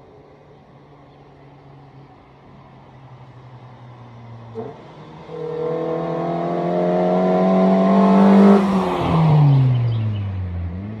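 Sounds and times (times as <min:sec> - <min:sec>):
car engine revving: 0:04.6 - 0:10.1.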